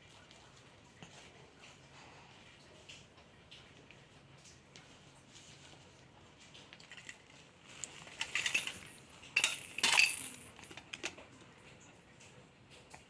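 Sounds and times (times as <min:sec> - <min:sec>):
metal objects clattering: 0:06.9 - 0:11.1.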